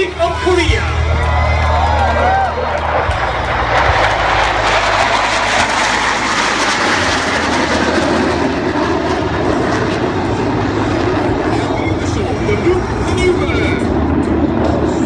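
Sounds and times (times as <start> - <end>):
jet engine rushing: 0.0 - 15.0.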